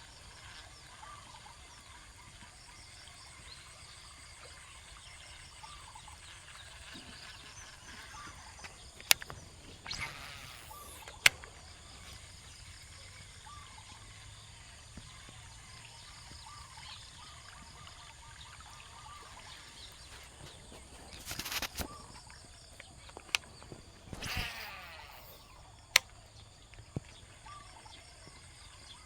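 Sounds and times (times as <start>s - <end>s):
faint chirping calls: 0.0s - 29.0s
sharp click: 6.8s - 12.4s, 21.1s - 22.4s, 23.2s - 26.2s.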